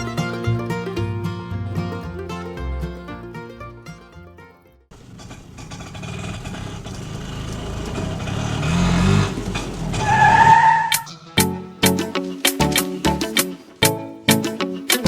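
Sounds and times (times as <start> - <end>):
vehicle engine running: 4.9 - 10.3.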